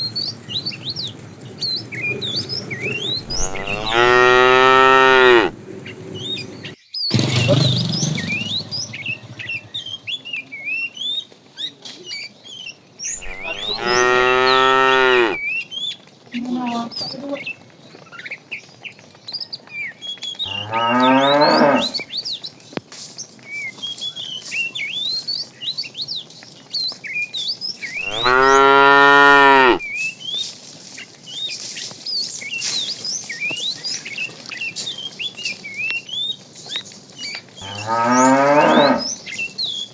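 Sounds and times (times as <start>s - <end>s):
cattle mooing: 3.1s - 5.6s, 13.2s - 15.4s, 20.5s - 22.0s, 28.0s - 29.8s, 37.6s - 39.2s.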